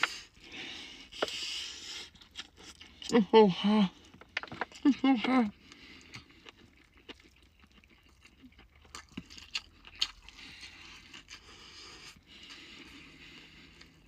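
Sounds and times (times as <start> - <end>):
person chewing fried chicken: 0.0 - 3.3, 3.9 - 14.0.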